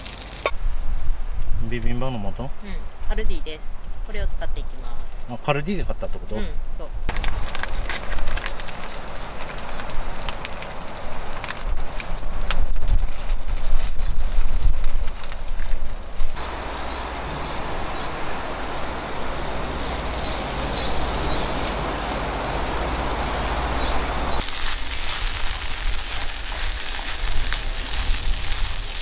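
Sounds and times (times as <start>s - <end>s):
rice sizzling in a skillet: 0.0s - 0.6s, 24.3s - 29.0s
outdoor background hiss: 0.0s - 12.4s, 15.8s - 29.0s
bird chirps: 16.4s - 24.4s.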